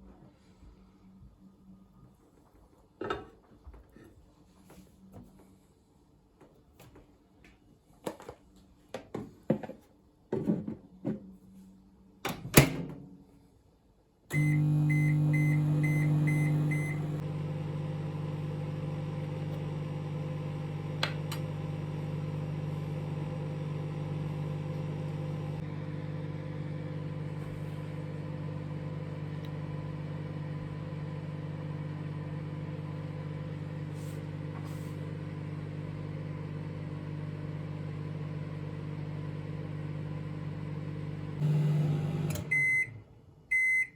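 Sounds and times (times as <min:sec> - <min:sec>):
microwave oven humming: 0:14.3 - 0:43.9
short beeps: 0:14.4 - 0:17.2.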